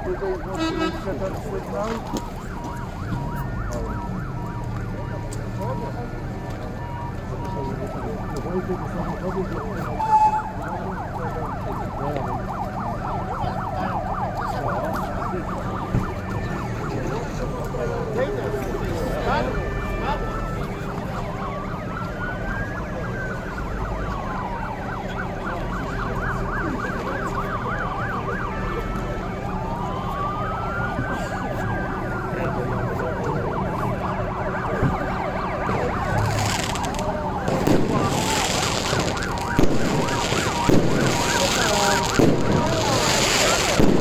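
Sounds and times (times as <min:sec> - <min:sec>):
fire engine sirens wailing: 0:00.0 - 0:44.0
noisy rush: 0:35.3 - 0:44.0.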